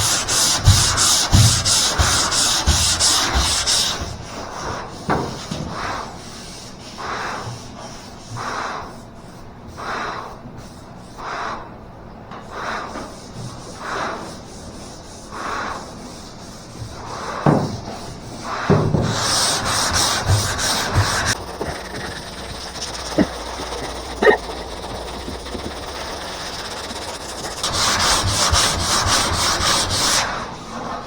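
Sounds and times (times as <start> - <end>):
sandpaper rasping on metal panel: 0.0 - 4.1, 18.1 - 30.3.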